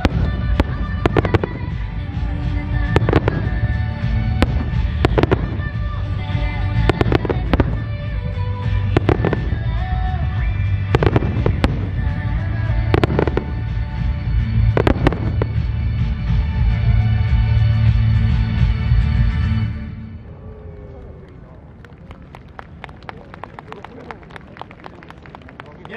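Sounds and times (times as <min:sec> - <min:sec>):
firework shells bursting with bangs: 0:00.0 - 0:16.0
music playing: 0:00.0 - 0:20.3.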